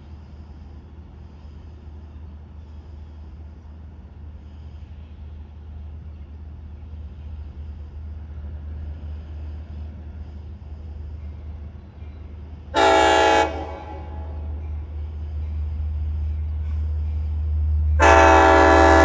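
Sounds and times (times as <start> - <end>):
train horn blast: 12.7 - 14.6, 17.9 - 19.0.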